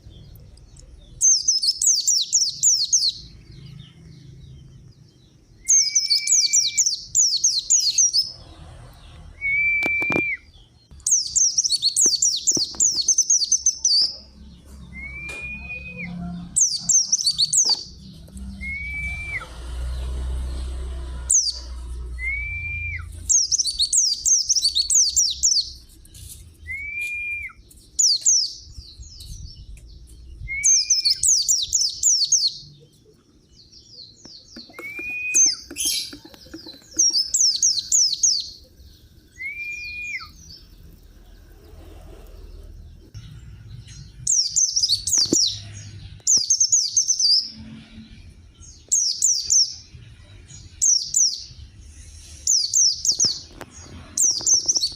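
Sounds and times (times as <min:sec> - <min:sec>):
bird chirping: 0:00.0 - 0:54.9
short whistled bird note: 0:09.5 - 0:10.5, 0:14.9 - 0:16.2, 0:34.7 - 0:35.7.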